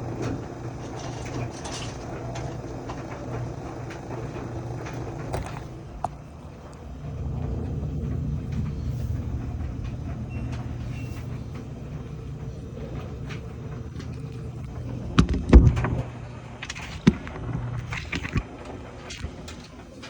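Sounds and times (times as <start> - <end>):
clothes dryer buzzing: 0.0 - 20.0
dryer knocks and thumps: 1.7 - 16.2.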